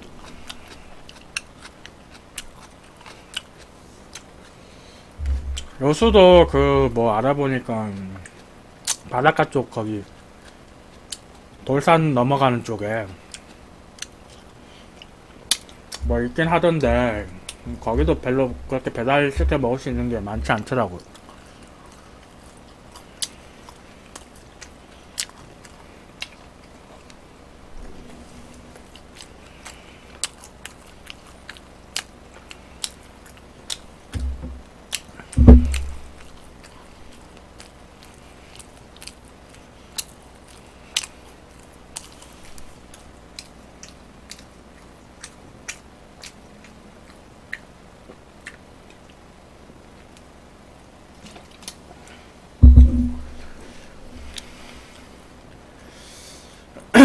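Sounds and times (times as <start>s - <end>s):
person chewing: 0.0s - 6.8s, 7.9s - 9.1s, 10.0s - 11.6s, 13.2s - 27.3s, 28.0s - 49.2s, 52.8s - 55.1s
low thump: 5.2s - 5.6s, 19.4s - 19.6s, 34.2s - 34.6s, 35.3s - 36.2s, 52.6s - 54.4s.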